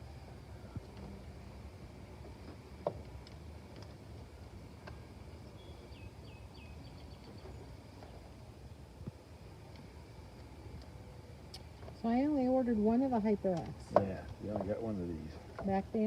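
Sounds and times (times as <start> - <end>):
outdoor background noise: 0.0 - 16.0
bird chirping: 4.8 - 8.3.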